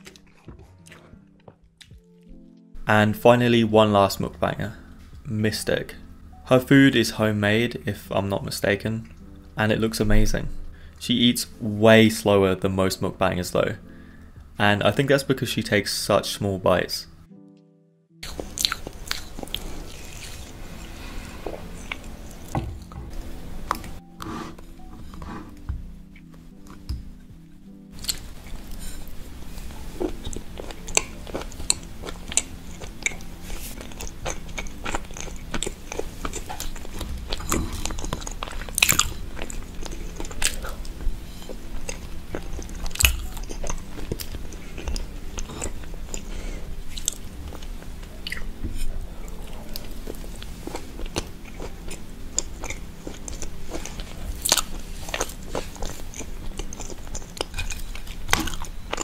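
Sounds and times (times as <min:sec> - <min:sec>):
chewing and biting cake: 0:00.0 - 0:02.1, 0:18.2 - 0:22.5, 0:27.9 - 0:59.0.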